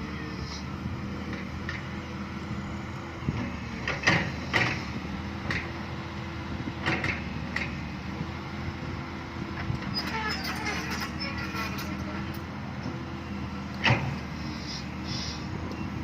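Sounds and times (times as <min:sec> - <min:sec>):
excavator diesel engine running: 0:00.0 - 0:16.0
metal parts squeaking and clanking: 0:09.9 - 0:12.4.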